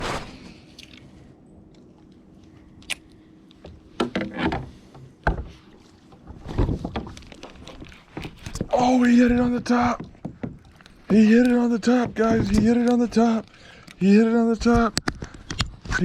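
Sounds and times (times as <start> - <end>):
low steady background noise: 0.0 - 16.0
knocks and thumps on kayak: 6.2 - 13.3.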